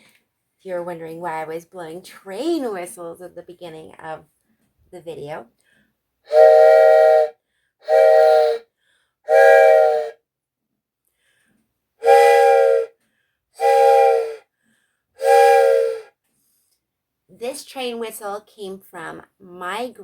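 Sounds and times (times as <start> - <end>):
train whistle blasts: 6.3 - 8.7, 9.3 - 10.2, 12.0 - 13.0, 13.6 - 14.5, 15.2 - 16.2.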